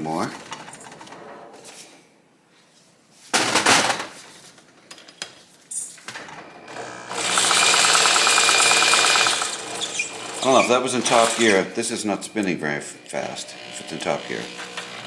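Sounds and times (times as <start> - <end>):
rapid ratcheting clicks: 7.1 - 10.5.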